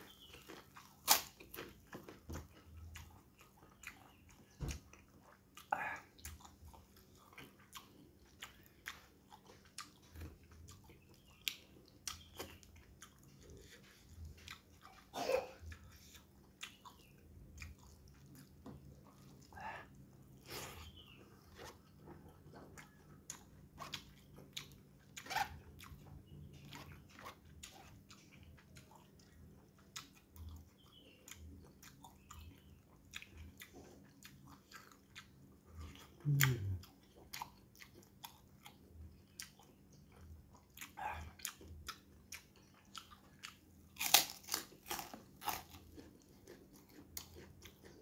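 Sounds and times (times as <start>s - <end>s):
cracker crunching: 0.1s - 3.1s, 41.8s - 48.0s
chewing with wet mouth clicks: 0.1s - 48.0s.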